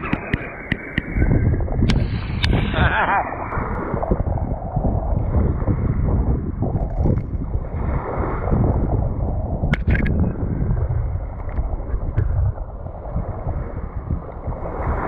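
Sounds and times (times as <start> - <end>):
sharp clicks: 0.0 - 1.2
wind buffeting microphone: 0.0 - 15.0.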